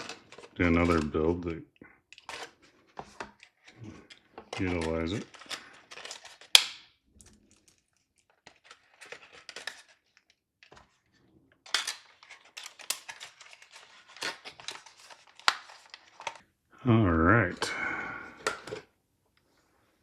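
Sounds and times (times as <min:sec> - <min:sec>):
plastic packaging rustling: 0:00.0 - 0:01.3, 0:02.1 - 0:16.4.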